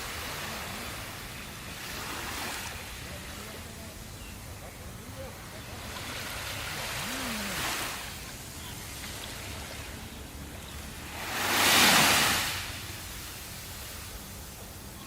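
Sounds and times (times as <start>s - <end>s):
surf washing on shore: 0.0s - 15.0s
wave breaking: 8.9s - 14.1s.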